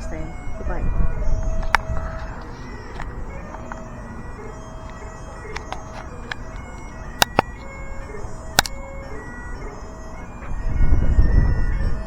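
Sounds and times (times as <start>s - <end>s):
bagpipes playing over drones: 0.0s - 12.0s
sharp clicks: 1.4s - 3.9s, 4.8s - 7.8s, 8.5s - 9.0s.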